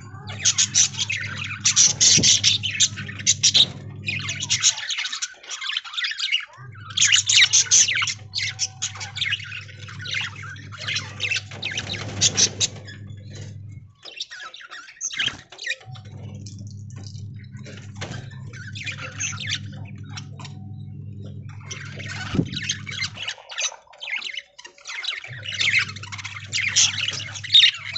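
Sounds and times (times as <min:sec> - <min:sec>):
steady low hum: 0:00.0 - 0:04.9, 0:06.6 - 0:14.0, 0:15.9 - 0:23.3, 0:25.3 - 0:27.9
budgerigars chattering and squawking: 0:00.0 - 0:20.6, 0:21.2 - 0:27.9.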